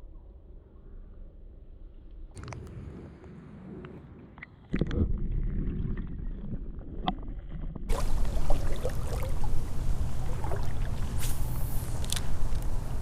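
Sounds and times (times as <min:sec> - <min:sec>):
wind rumble on microphone: 0:02.3 - 0:13.0
water sloshing in a creek: 0:04.7 - 0:13.0.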